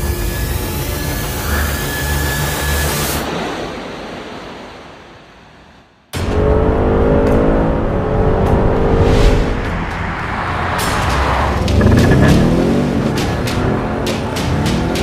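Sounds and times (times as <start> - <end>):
car engine accelerating hard: 6.2 - 15.0
steady sound: 6.5 - 13.2.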